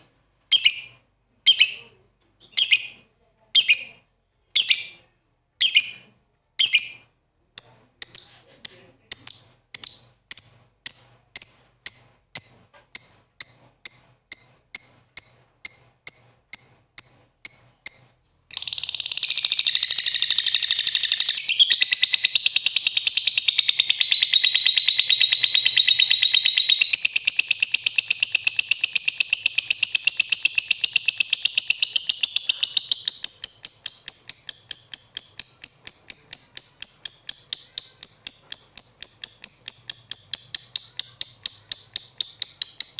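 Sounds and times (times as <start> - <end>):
lovebirds chirping: 0.0 - 42.9.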